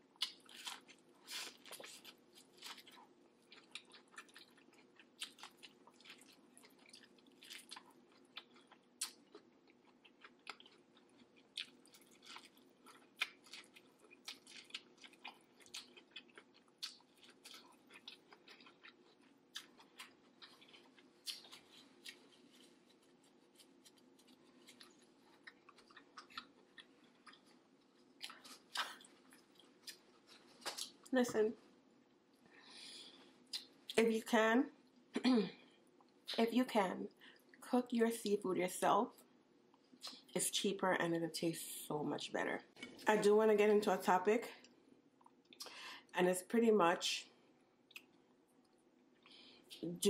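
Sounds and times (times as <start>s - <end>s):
faint steady hum: 0.0s - 50.0s
chewing and wet mouth clicks: 0.2s - 31.0s, 33.5s - 34.0s, 40.0s - 40.3s, 44.6s - 45.7s, 47.9s - 49.8s.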